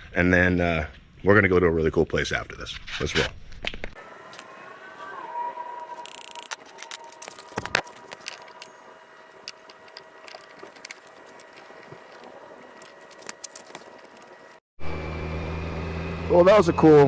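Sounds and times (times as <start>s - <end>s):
faint steady whine: 4.0s - 14.6s.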